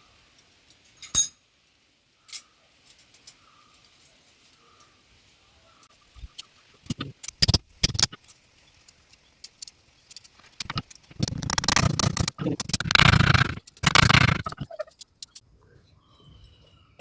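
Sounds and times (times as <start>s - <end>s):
metallic clicks and clinks: 0.7s - 1.4s, 6.3s - 15.4s.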